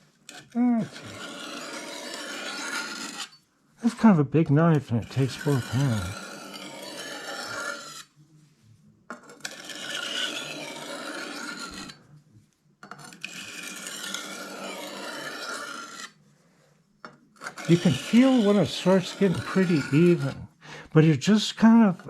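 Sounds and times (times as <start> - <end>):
knife scraping on sharpening stone: 0.3 - 4.0, 4.7 - 8.1, 9.2 - 12.0, 12.9 - 16.2, 17.4 - 20.5.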